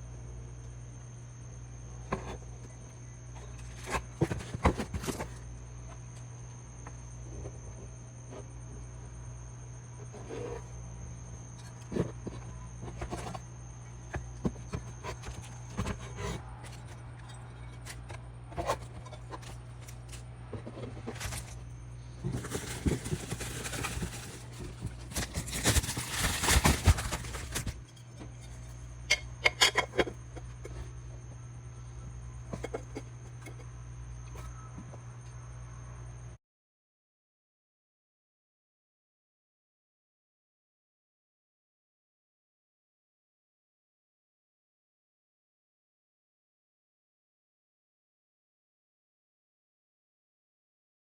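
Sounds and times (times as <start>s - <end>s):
steady low hum: 0.0s - 36.4s.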